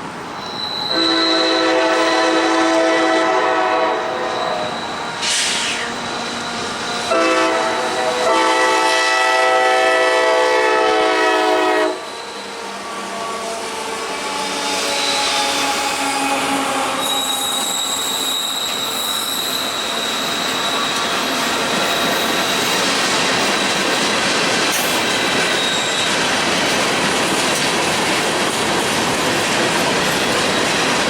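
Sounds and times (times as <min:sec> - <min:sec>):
train wheels on rails: 0:00.0 - 0:31.0
locomotive air horn blasts: 0:00.8 - 0:05.8, 0:07.1 - 0:12.2
brief hiss: 0:05.2 - 0:06.0.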